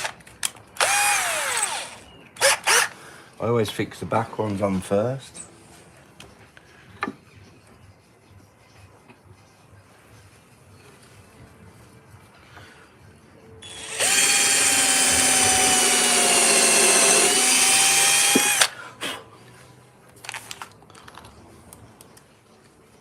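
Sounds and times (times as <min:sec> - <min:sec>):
electric drill running: 0:00.8 - 0:02.9, 0:13.6 - 0:18.7.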